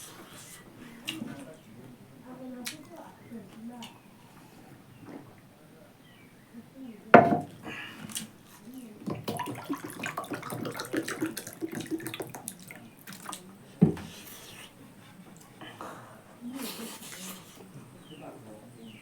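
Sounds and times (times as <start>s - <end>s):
sharp knock on table: 7.2s - 7.5s.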